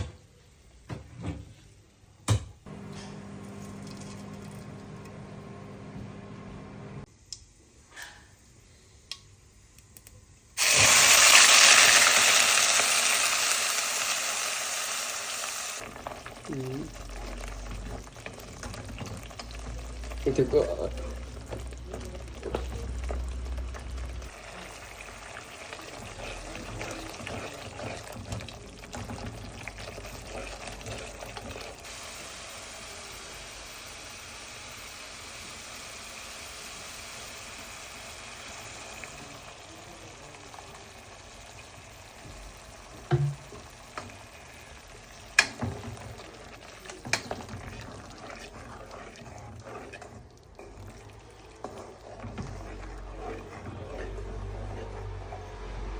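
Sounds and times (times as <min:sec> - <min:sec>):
curry sizzling in a pan: 0:10.6 - 0:55.9
stirring in a pan: 0:10.6 - 0:55.9.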